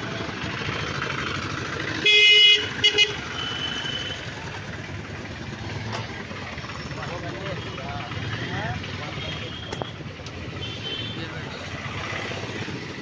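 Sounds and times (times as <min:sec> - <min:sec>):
street traffic noise: 0:00.0 - 0:13.0
vehicle horn toots: 0:02.0 - 0:04.3, 0:09.1 - 0:11.4.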